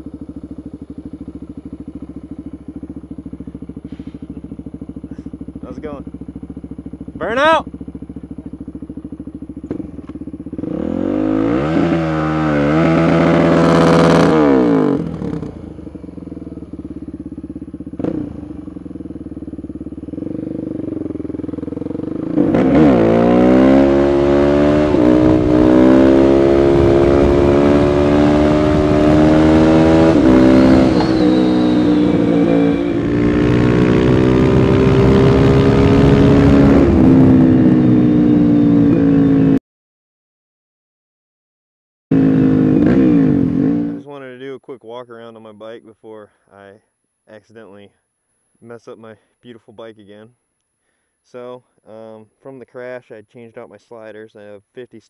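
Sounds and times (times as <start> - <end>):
motorcycle engine revving: 0.0 - 39.6, 42.1 - 44.6.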